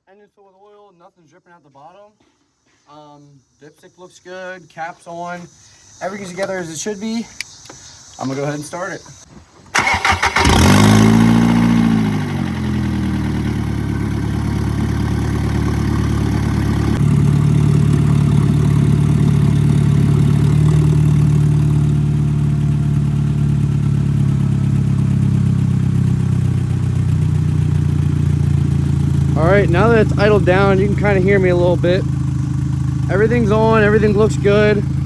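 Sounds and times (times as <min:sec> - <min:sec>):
car engine starting and idling: 0:07.4 - 0:35.0.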